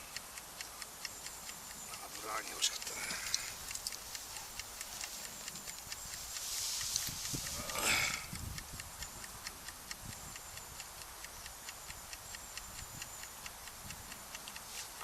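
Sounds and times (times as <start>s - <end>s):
campfire crackling: 0.0s - 9.9s.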